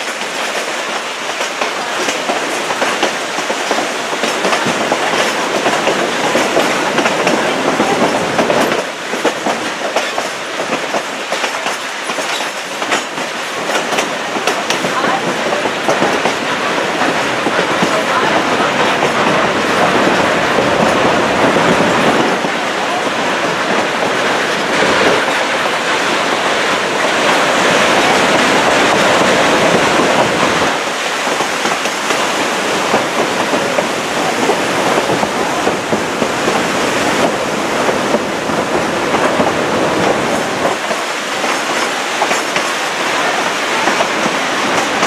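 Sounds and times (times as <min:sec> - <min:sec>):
train cars rolling: 0:00.0 - 0:45.0
wheels clicking over rail joints: 0:00.0 - 0:45.0.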